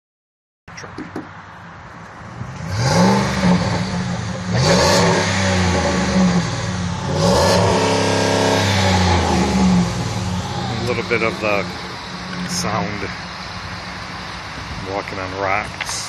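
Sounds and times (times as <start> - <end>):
truck engine revving: 2.4 - 14.8.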